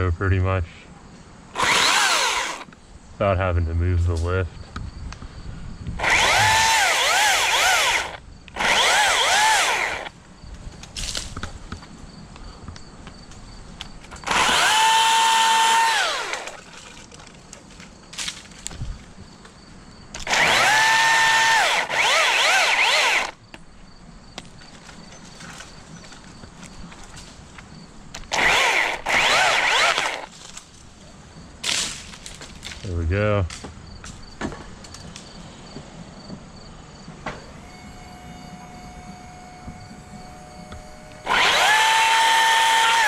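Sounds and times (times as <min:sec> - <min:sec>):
chainsaw cutting wood: 0:01.6 - 0:02.7, 0:06.0 - 0:10.2, 0:14.2 - 0:16.7, 0:20.2 - 0:23.4, 0:28.2 - 0:30.6, 0:37.4 - 0:43.0.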